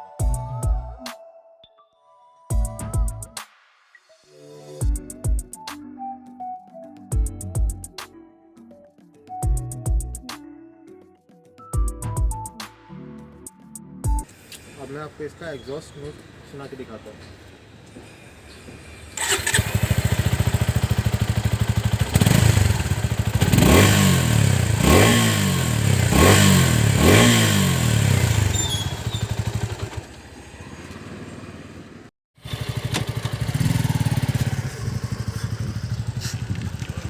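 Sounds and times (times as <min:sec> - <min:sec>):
motorcycle engine idling and revving: 0:19.2 - 0:37.0.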